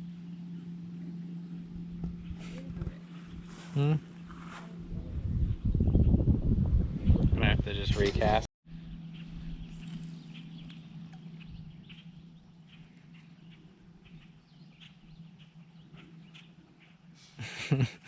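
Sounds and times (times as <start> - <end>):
small birds chirping: 0.0 - 4.3, 8.7 - 17.5
steady low hum: 0.0 - 18.0.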